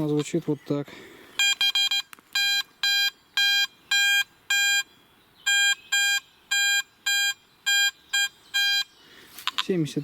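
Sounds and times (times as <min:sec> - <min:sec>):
metal detector high-pitched beeps: 0:01.4 - 0:04.9, 0:05.5 - 0:09.0.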